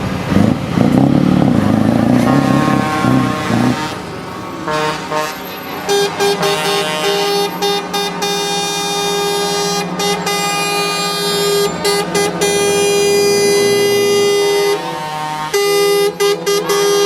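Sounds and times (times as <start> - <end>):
truck air horns blowing: 1.9 - 17.0.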